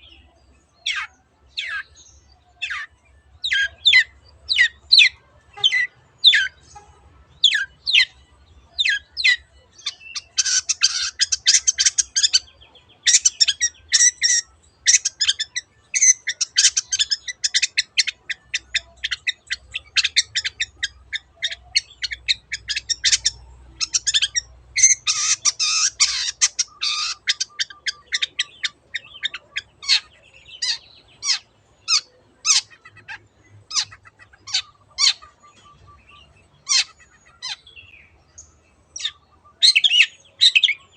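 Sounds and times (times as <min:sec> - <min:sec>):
bird call notes and chattering: 0:00.0 - 0:40.9.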